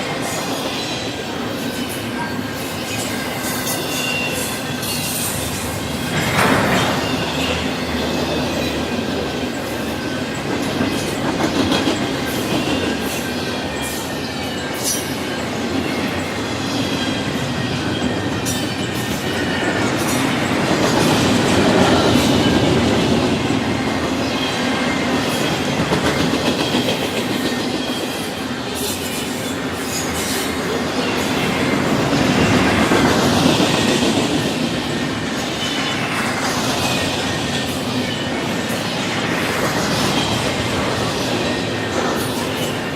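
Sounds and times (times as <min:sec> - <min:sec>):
freight train wheels rumbling: 0:00.0 - 0:42.9
faint high wheel squeal: 0:00.2 - 0:08.8.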